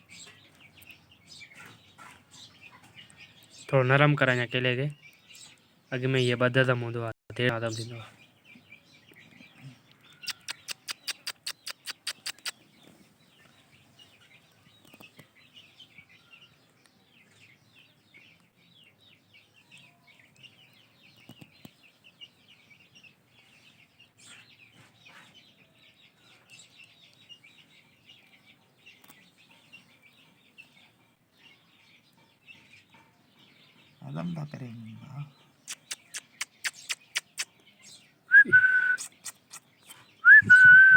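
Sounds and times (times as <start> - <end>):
parrot chicks begging chirps: 0.0 - 6.8, 7.4 - 40.9
sharp clicks: 10.3 - 12.6, 35.7 - 37.5.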